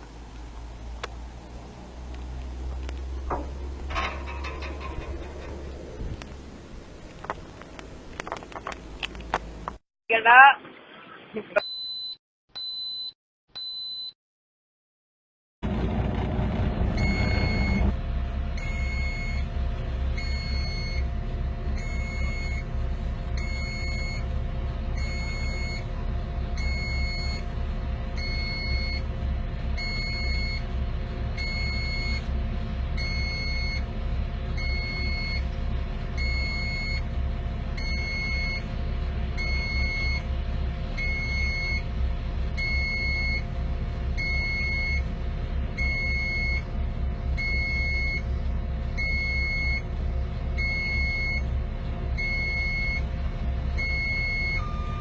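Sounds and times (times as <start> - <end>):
heavy machine engine running: 0.0 - 9.8, 15.6 - 55.0
reversing alarm beeping: 16.9 - 18.0, 18.6 - 19.5, 20.2 - 21.1, 21.8 - 22.7, 23.4 - 24.3, 25.0 - 25.9, 26.6 - 27.5, 28.2 - 29.1, 29.8 - 30.7, 31.4 - 32.3, 33.0 - 33.9, 34.6 - 35.5, 36.2 - 37.1, 37.8 - 38.7, 39.4 - 40.3, 41.0 - 41.9, 42.6 - 43.5, 44.2 - 45.1, 45.8 - 46.7, 47.4 - 48.3, 49.0 - 49.8, 50.6 - 51.5, 52.2 - 53.1, 53.8 - 55.0.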